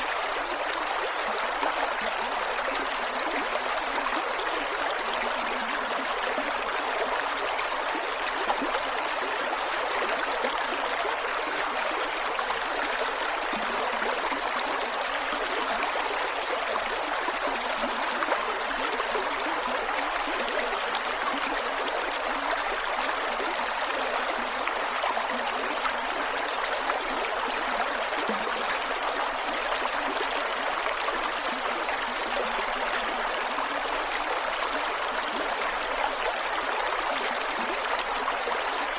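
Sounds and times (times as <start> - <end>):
creek water flowing over rocks: 0.0 - 38.9.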